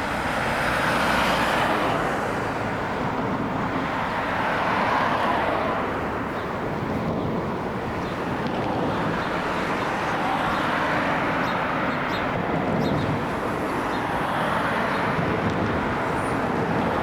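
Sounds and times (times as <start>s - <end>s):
jet airliner engine noise: 5.5s - 17.0s.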